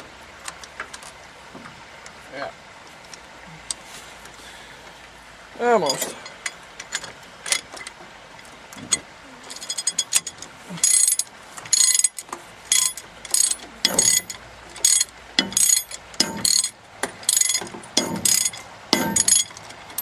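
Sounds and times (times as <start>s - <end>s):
hand ratchet clicking: 9.6s - 20.0s.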